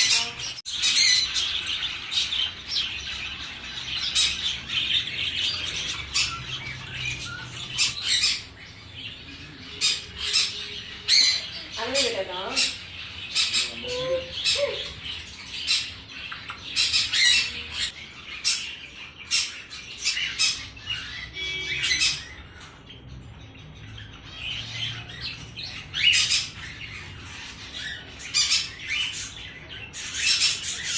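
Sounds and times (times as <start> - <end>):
birds squawking: 0.0 - 30.9.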